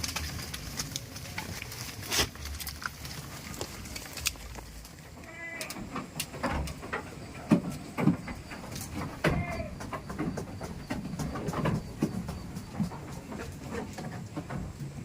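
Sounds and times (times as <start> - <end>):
goats bleating: 5.2 - 5.9, 9.2 - 9.9.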